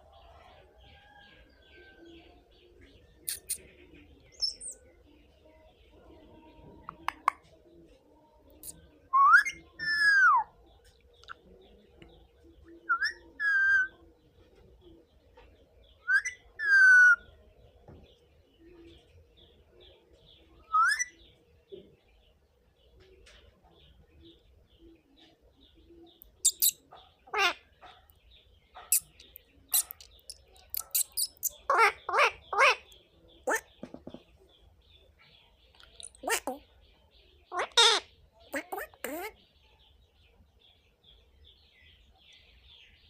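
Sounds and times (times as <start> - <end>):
parrot sharp chirps and clicks: 3.2 - 3.6, 6.9 - 7.4, 26.2 - 28.2, 28.8 - 33.7, 35.7 - 36.6, 37.5 - 39.4.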